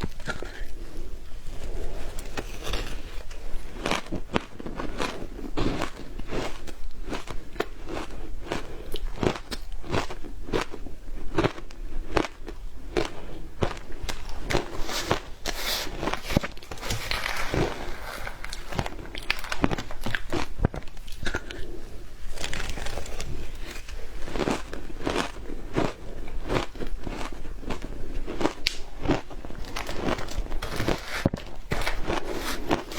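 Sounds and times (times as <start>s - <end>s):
ice crunched between teeth: 14.0s - 21.6s, 22.3s - 32.9s.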